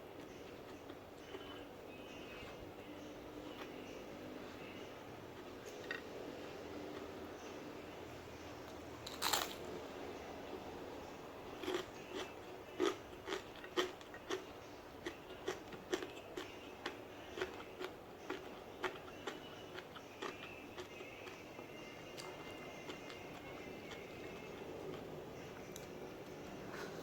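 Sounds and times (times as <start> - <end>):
chewing crunchy food: 3.4 - 4.0, 9.0 - 9.7, 11.5 - 26.0.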